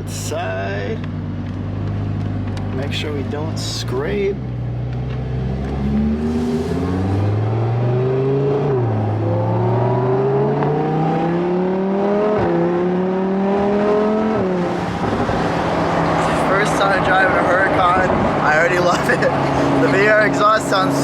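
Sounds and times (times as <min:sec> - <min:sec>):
sports car engine accelerating: 0:00.0 - 0:21.0.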